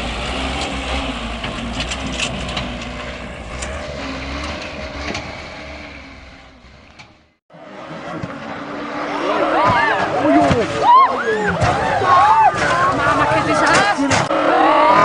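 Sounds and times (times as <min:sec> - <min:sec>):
heavy vehicle engine running: 0:00.0 - 0:10.8
knocks and rattles: 0:00.5 - 0:07.3.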